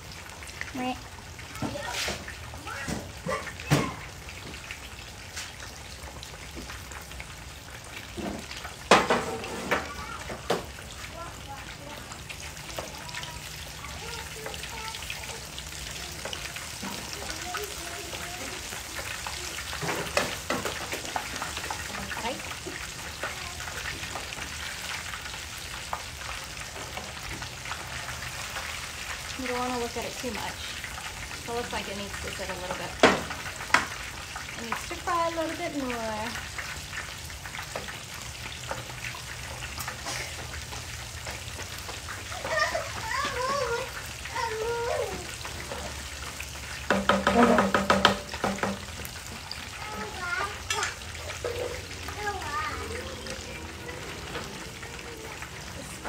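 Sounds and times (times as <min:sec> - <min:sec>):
fish sizzling in hot oil: 0:00.0 - 0:56.0
sharp knocks: 0:46.9 - 0:48.8.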